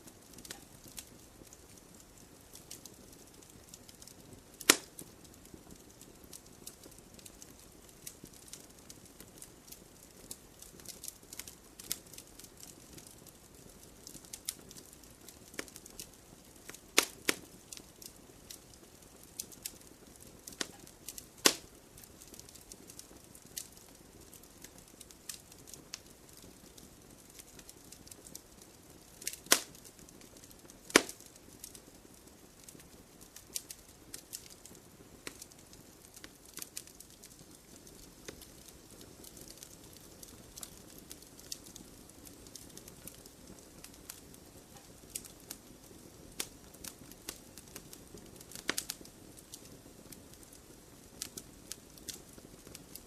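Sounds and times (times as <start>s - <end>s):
faint low hiss: 0.0s - 53.0s
wood fire crackling: 0.0s - 53.0s.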